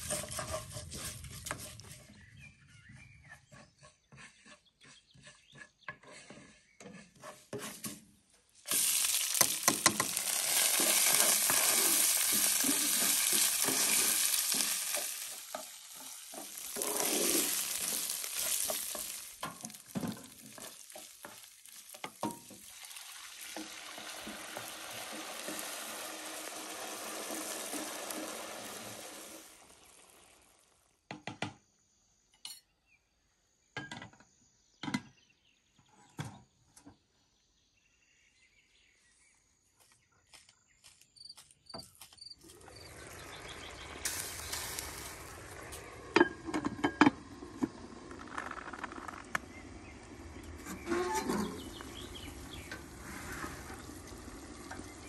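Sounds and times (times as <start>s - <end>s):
food sizzling in a pan: 8.7s - 30.8s, 42.4s - 55.0s.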